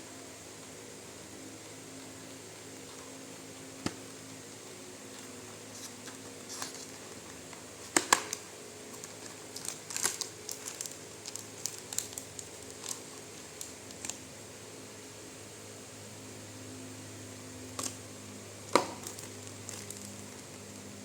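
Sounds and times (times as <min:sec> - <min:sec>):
packaging crinkling: 0:07.8 - 0:14.2, 0:18.7 - 0:20.7.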